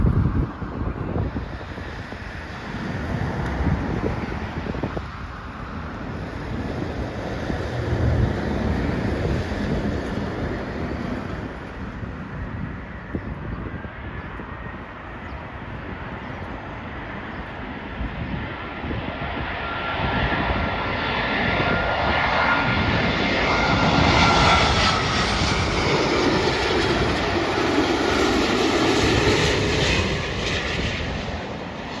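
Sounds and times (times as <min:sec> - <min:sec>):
jet airliner approaching: 0:00.0 - 0:32.0.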